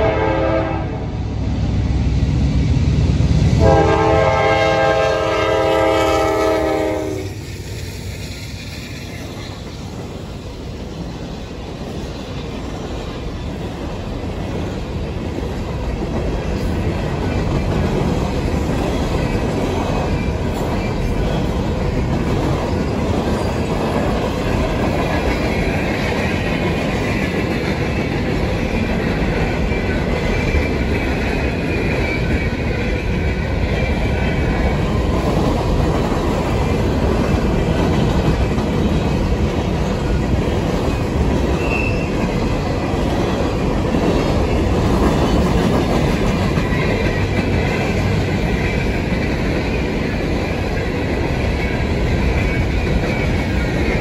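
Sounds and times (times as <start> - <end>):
freight train wheels rumbling: 0.0 - 54.0
high wheel squeal: 41.6 - 42.2.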